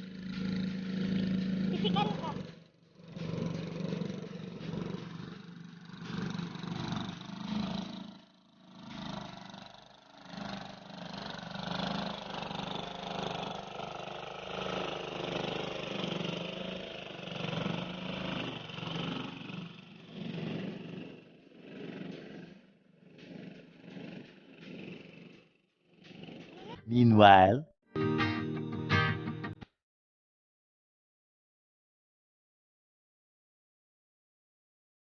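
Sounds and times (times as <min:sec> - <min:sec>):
hand tractor engine running: 0:00.0 - 0:26.7.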